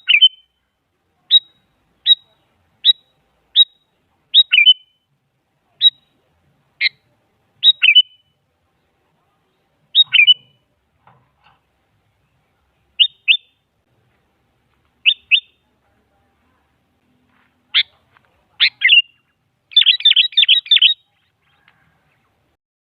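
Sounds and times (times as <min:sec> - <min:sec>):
bulbul calling in sharp notes: 0:00.0 - 0:00.6, 0:01.3 - 0:05.1, 0:06.8 - 0:08.4, 0:09.9 - 0:10.7, 0:12.9 - 0:13.7, 0:15.0 - 0:15.7, 0:17.7 - 0:21.7.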